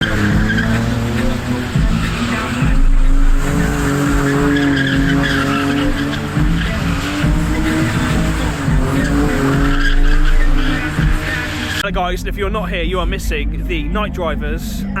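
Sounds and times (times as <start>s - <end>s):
car engine revving hard: 0.0s - 11.8s
tyres squealing and skidding: 0.0s - 11.8s.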